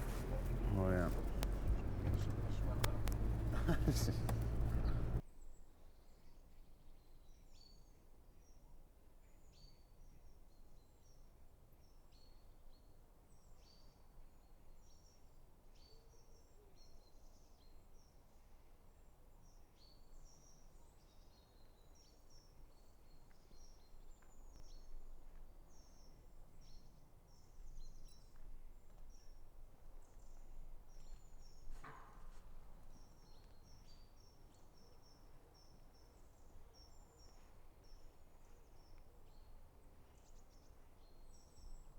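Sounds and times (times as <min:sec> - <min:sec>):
faint low rumble: 0:00.0 - 0:05.2
small birds chirping: 0:00.0 - 0:05.2.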